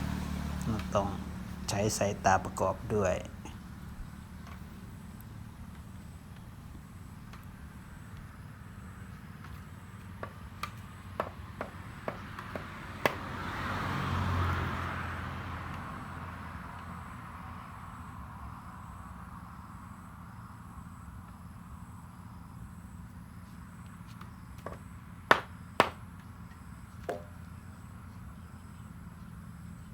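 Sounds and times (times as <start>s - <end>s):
vehicle passing: 0.0s - 19.5s.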